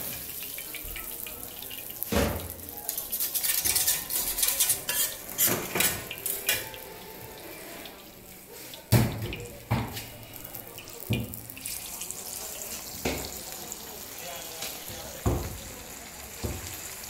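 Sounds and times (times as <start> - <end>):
oil sizzling on a griddle: 0.0 - 17.0
metal spatula scraping griddle: 3.1 - 8.7.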